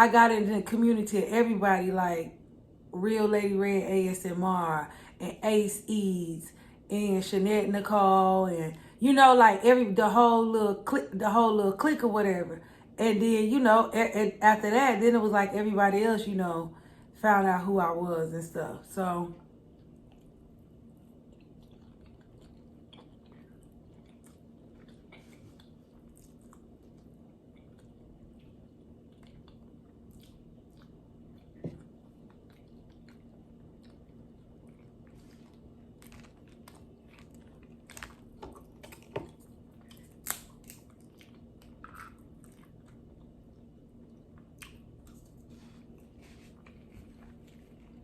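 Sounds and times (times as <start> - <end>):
low steady hum: 0.0 - 48.0
wet chewing: 19.5 - 48.0.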